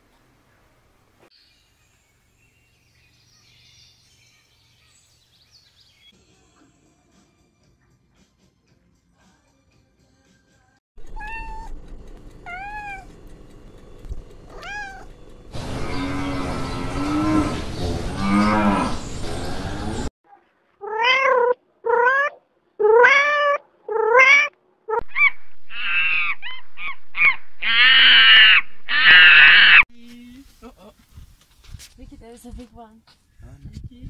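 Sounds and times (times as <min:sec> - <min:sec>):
cats meowing: 0:11.0 - 0:11.8, 0:12.4 - 0:13.2, 0:14.5 - 0:15.1, 0:20.8 - 0:25.0.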